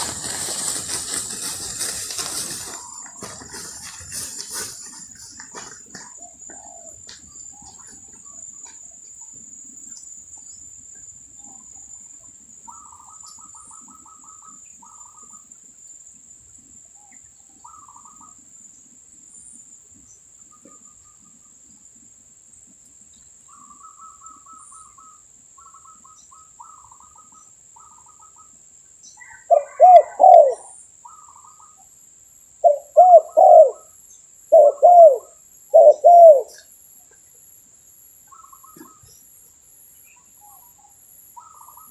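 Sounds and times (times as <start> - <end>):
dove cooing: 0.0 - 8.4, 29.2 - 31.5, 32.6 - 33.9, 34.5 - 36.6
small birds twittering: 0.0 - 15.4, 38.3 - 39.3, 40.0 - 41.9.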